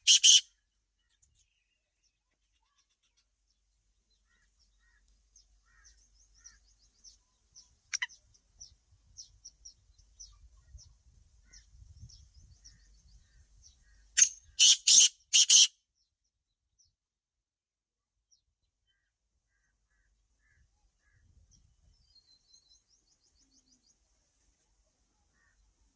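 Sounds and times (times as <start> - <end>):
harsh bird calls: 0.0 - 0.5, 13.8 - 15.7
small birds chirping: 0.0 - 16.9, 18.3 - 25.9.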